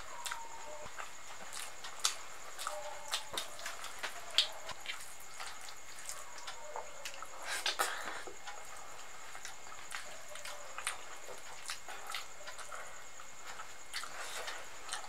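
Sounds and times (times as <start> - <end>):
wet chewing clicks and smacks: 9.3 - 12.8.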